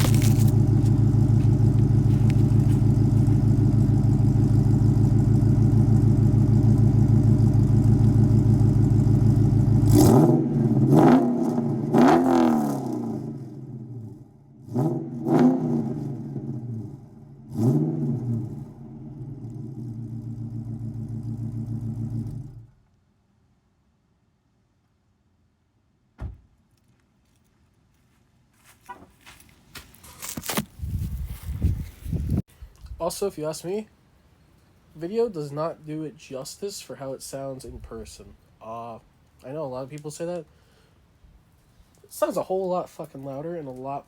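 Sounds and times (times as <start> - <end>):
car engine idling: 0.0 - 11.9, 15.8 - 22.8
car engine revving: 0.0 - 22.8.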